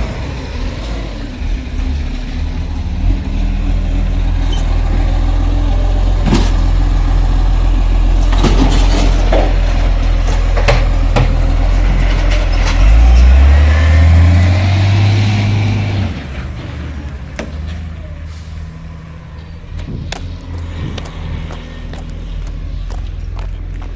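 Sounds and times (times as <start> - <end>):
diesel engine running loudly: 0.0 - 23.9
sharp knocks and clanks: 8.3 - 12.9.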